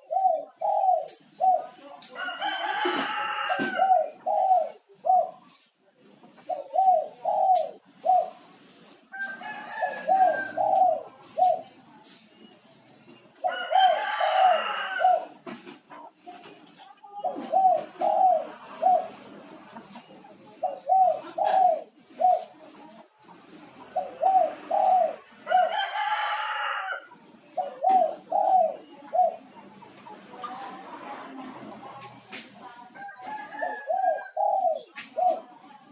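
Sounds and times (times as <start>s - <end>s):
dove cooing: 0.0s - 15.9s, 17.1s - 22.8s, 23.4s - 31.9s, 33.0s - 35.9s
rooster crowing: 2.2s - 4.0s, 9.1s - 10.9s, 13.5s - 15.3s, 25.4s - 27.1s, 33.0s - 34.3s.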